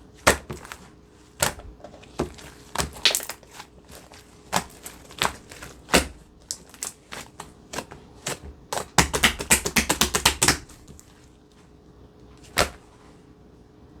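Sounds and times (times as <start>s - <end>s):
slime squeezed popping: 2.8s - 3.4s.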